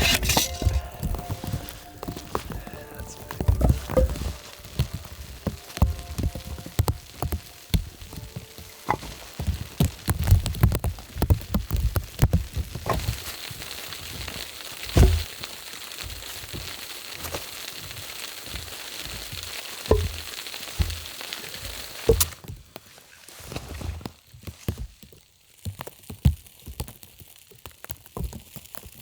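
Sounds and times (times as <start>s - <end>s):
firewood knocks and thumps: 0.0s - 22.8s
campfire hissing and crackling: 0.0s - 29.0s.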